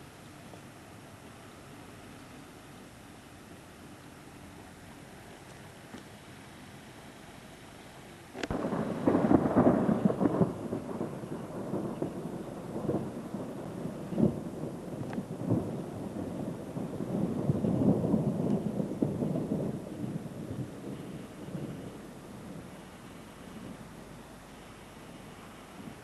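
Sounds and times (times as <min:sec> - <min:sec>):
thunder crack and rumble: 0:08.4 - 0:22.8.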